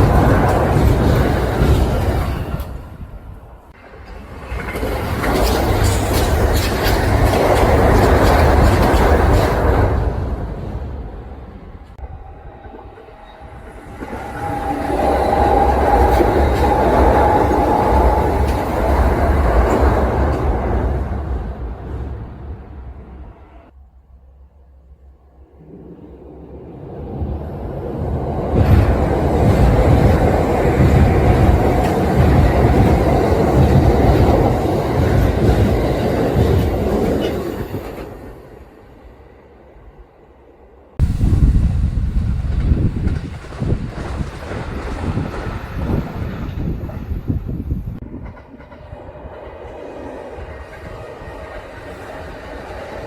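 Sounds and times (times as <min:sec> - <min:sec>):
wheels clacking over rail joints: 0:00.0 - 0:03.1, 0:03.7 - 0:10.8, 0:12.9 - 0:22.0, 0:27.9 - 0:38.4, 0:42.2 - 0:53.0
electric train passing: 0:00.0 - 0:53.0.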